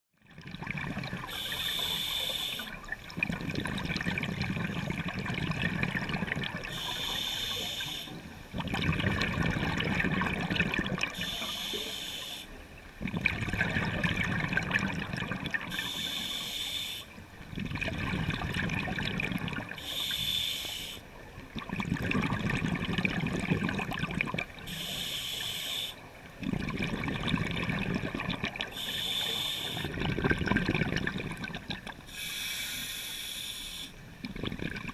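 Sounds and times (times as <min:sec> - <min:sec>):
bubbling exhale: 0:00.5 - 0:21.0, 0:21.6 - 0:34.9
regulator hissing inhale: 0:01.2 - 0:02.8, 0:06.7 - 0:08.3, 0:11.1 - 0:12.6, 0:15.7 - 0:17.2, 0:19.8 - 0:21.1, 0:24.7 - 0:26.1, 0:28.7 - 0:30.0, 0:32.1 - 0:34.0.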